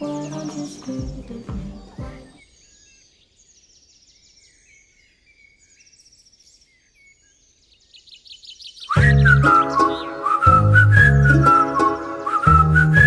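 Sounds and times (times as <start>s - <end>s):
small birds chirping: 0.0s - 13.0s
musical notes: 8.9s - 13.0s.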